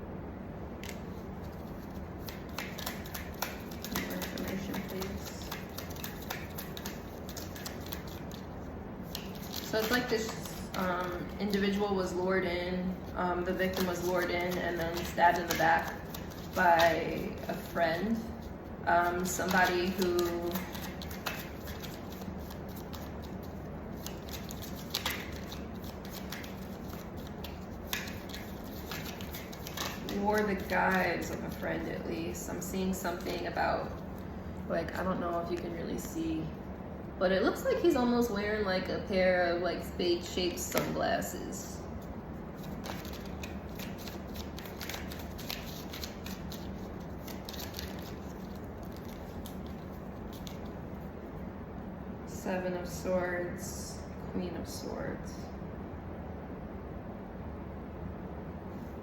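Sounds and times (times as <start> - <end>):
low room hum: 0.0 - 59.0
cards clicking and rustling: 1.6 - 8.4, 9.1 - 11.7, 13.6 - 17.7, 19.2 - 31.7, 42.6 - 50.7.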